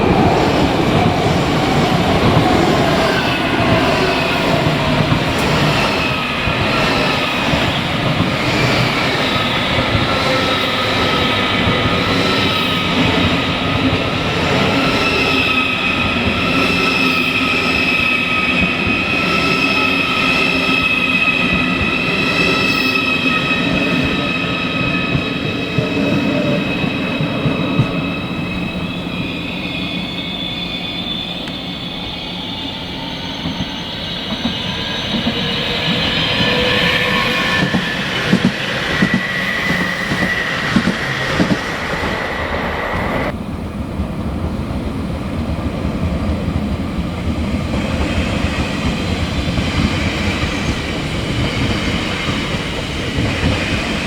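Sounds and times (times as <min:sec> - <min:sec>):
train whine falling in pitch: 0:00.0 - 0:43.6
train rumble: 0:00.0 - 0:54.0
high-pitched wheel squeals: 0:02.2 - 0:43.3.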